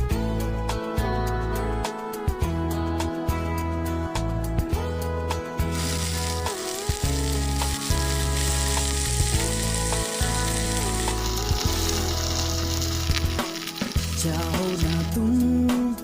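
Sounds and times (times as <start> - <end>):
background music: 0.0 - 16.0
food sizzling in a pan: 5.7 - 15.2.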